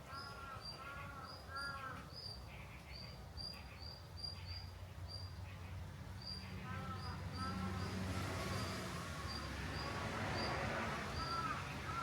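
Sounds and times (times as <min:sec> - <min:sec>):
crow cawing: 0:00.1 - 0:02.1, 0:06.6 - 0:07.8, 0:11.2 - 0:12.0.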